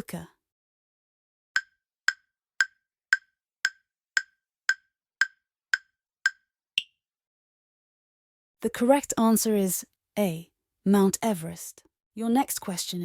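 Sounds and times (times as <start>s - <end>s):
clock-like ticks: 1.6s - 6.4s.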